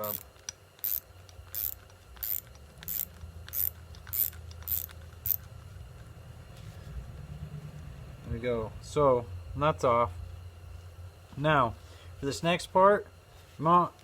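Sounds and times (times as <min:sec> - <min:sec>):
ratchet clicking: 0:00.0 - 0:05.5.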